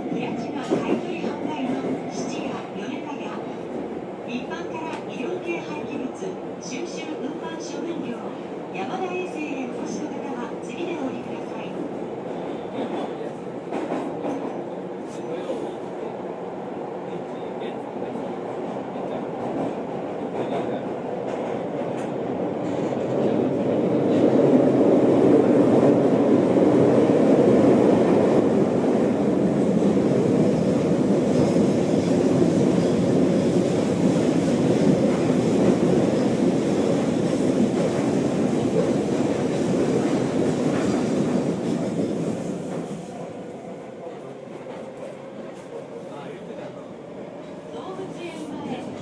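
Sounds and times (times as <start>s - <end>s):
subway train wheel rumble: 0.0s - 49.0s
train wheels clickety-clack: 12.4s - 14.6s, 18.7s - 24.6s, 29.7s - 43.4s.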